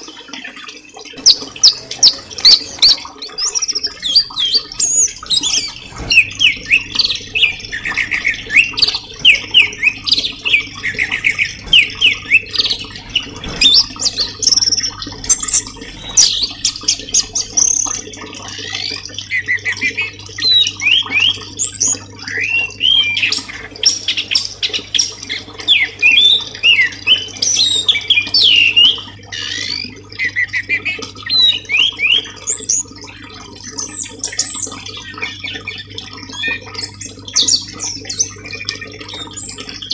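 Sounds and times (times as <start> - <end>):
songbird chirping and whistling: 1.2 - 18.0, 20.4 - 29.2.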